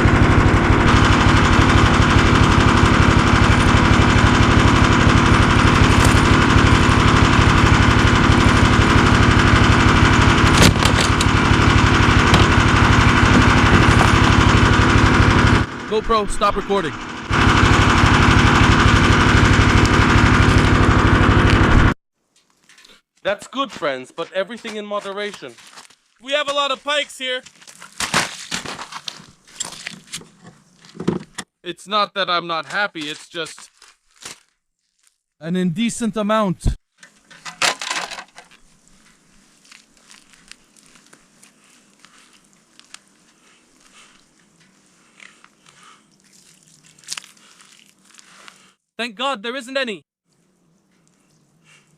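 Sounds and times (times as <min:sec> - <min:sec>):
small engine running: 0:00.0 - 0:22.0
rustling crinkling handling noise: 0:33.0 - 0:35.2, 0:36.9 - 0:48.6
faint clicks and crackles: 0:38.4 - 0:48.6.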